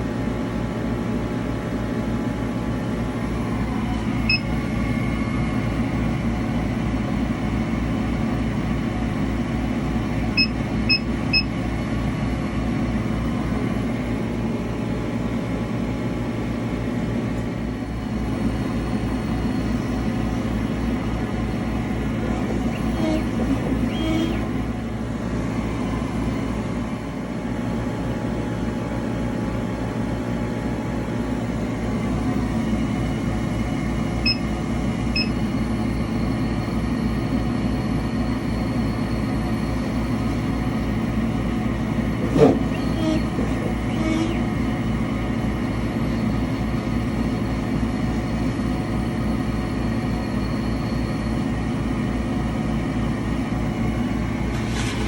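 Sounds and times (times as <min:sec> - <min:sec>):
engraver mechanical grinding: 0:21.0 - 0:25.2, 0:42.0 - 0:44.6.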